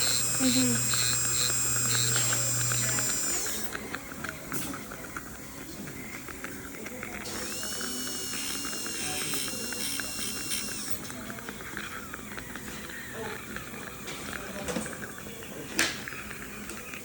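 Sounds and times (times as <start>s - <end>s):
dental handpiece whine: 0.0s - 4.0s, 7.2s - 14.0s
rapid mechanical clicking: 0.0s - 4.4s, 6.9s - 14.4s.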